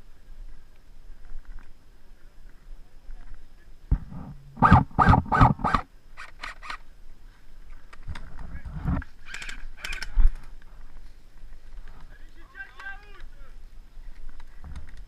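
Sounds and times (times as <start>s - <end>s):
airsoft gun shots: 3.9s - 5.9s.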